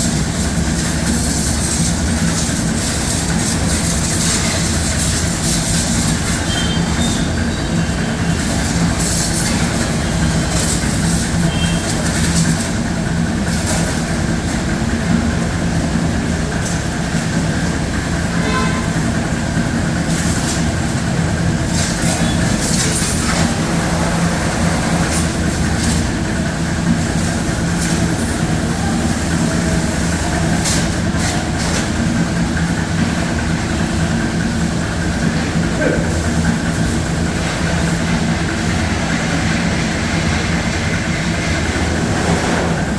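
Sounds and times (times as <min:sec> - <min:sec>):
spraying water hiss: 0:00.0 - 0:14.9, 0:19.9 - 0:33.4
pressure washer motor hum: 0:00.0 - 0:42.9.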